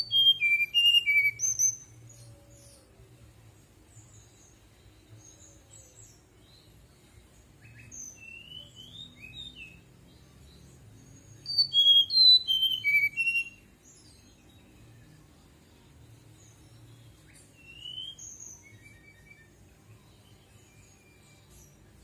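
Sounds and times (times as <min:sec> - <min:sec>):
bird singing whistled song: 0:00.0 - 0:03.0, 0:03.9 - 0:22.0.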